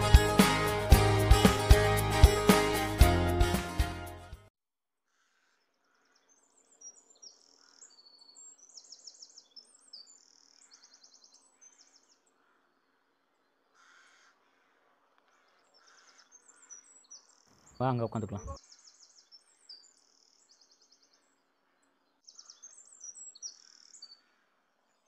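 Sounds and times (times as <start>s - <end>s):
background music: 0.0s - 4.5s
small birds chirping: 5.2s - 14.4s, 15.2s - 25.0s.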